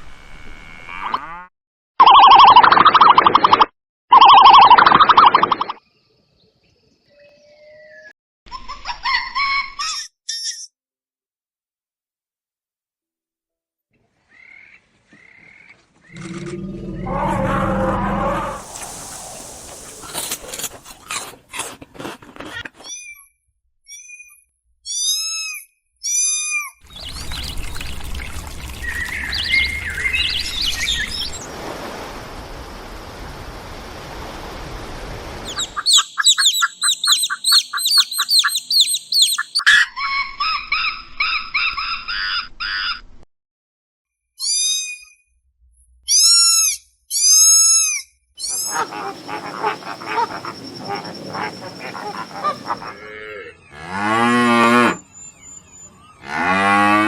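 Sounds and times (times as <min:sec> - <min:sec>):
bird chirps: 0:26.8 - 0:31.4, 0:35.4 - 0:42.1, 0:48.4 - 0:53.0, 0:55.1 - 0:56.2
bird trilling calls: 0:26.9 - 0:31.4, 0:35.4 - 0:42.1, 0:48.4 - 0:53.1.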